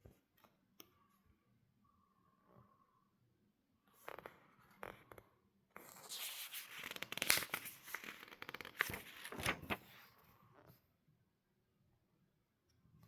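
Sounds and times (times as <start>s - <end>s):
paper rustling and crinkling: 5.8s - 10.1s.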